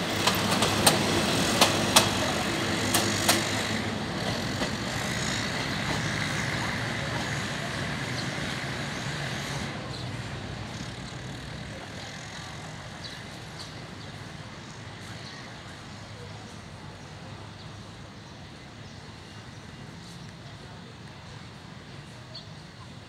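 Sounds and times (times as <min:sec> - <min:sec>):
train wheels clacking: 0:00.0 - 0:12.8
train running rumble: 0:00.0 - 0:16.8.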